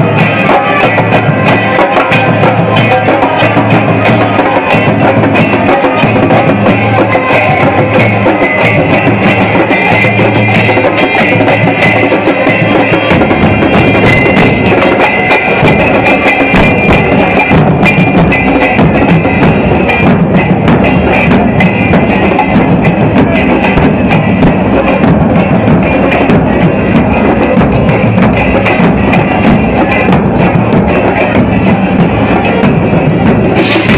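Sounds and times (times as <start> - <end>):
crowd chanting: 0.0 - 20.0
drum band playing: 0.0 - 33.9.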